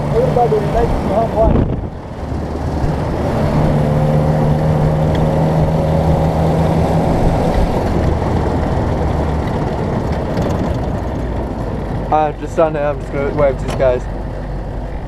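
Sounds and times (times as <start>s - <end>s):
drivetrain whine: 0.0s - 15.0s
vehicle engine drone: 0.0s - 15.0s.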